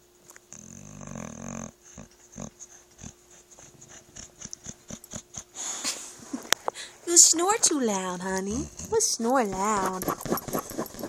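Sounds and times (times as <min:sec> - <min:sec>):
dog snoring: 0:00.5 - 0:06.0, 0:08.2 - 0:11.0.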